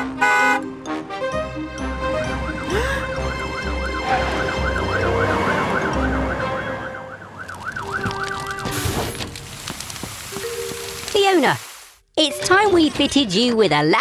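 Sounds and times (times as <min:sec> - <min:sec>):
background music: 0:00.0 - 0:08.7
cartoon siren wailing: 0:02.7 - 0:08.7.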